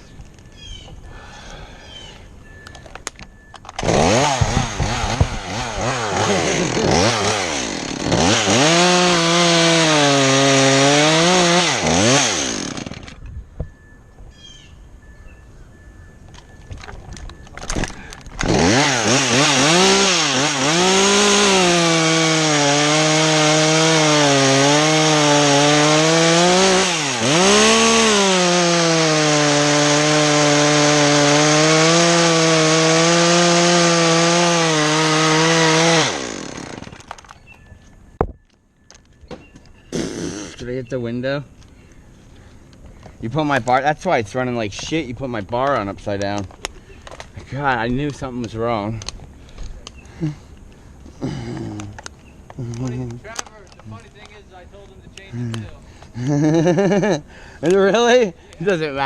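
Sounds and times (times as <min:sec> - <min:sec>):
chainsaw cutting wood: 0:03.7 - 0:13.2, 0:17.5 - 0:37.3, 0:39.9 - 0:40.7, 0:55.1 - 0:58.1.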